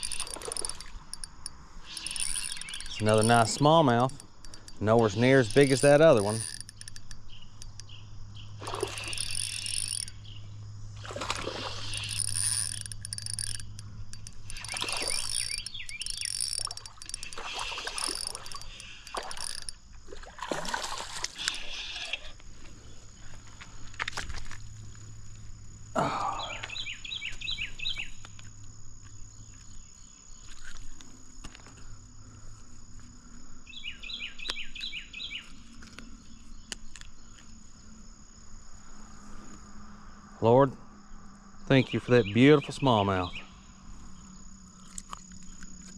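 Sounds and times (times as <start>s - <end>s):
fish splashing: 0.0s - 3.8s, 8.6s - 10.1s, 11.0s - 21.8s
fishing reel working: 0.0s - 7.9s, 8.6s - 10.2s, 11.6s - 19.8s
fast insect chirping: 0.0s - 20.1s.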